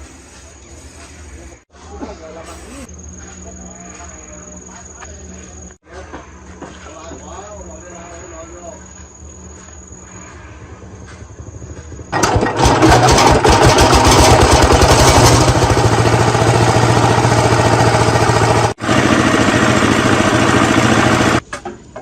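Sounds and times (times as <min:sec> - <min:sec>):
diesel engine starting: 0:12.1 - 0:21.4.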